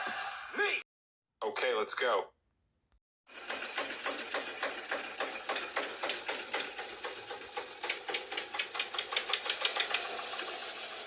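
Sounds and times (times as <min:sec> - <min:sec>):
toy tractor motor and gears: 0:03.3 - 0:11.0
rapid clicking: 0:03.4 - 0:10.3.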